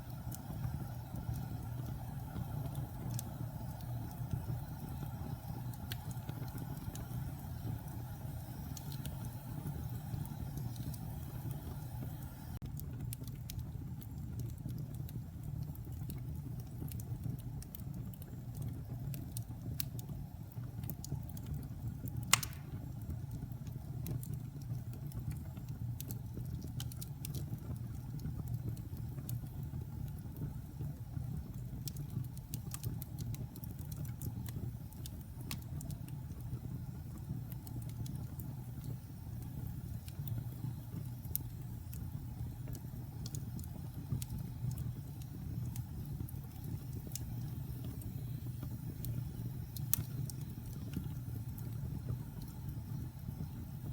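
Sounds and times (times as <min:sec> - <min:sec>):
wood fire crackling: 0:00.0 - 0:53.9
sharp loud pop: 0:22.3 - 0:22.8.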